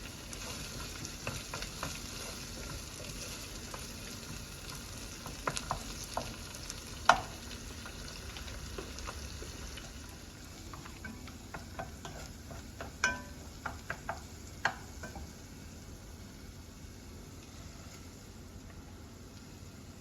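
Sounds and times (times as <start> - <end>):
food sizzling in a pan: 0.0 - 20.0
utensil clinking against pan: 12.8 - 13.8.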